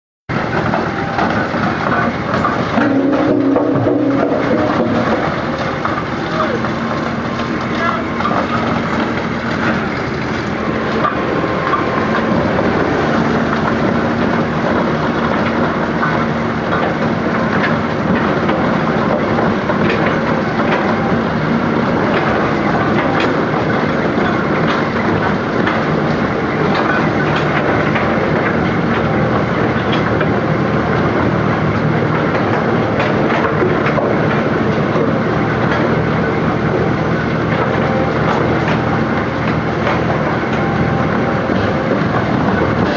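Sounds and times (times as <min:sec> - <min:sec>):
impact crusher machine din: 0:00.3 - 0:42.9
concrete chunks knocking and rattling: 0:00.5 - 0:11.2.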